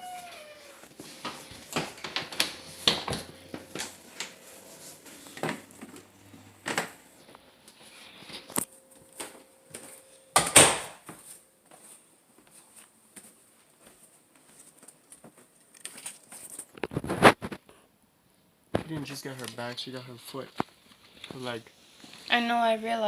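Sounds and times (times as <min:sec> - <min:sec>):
objects being handled: 0:13.8 - 0:17.8.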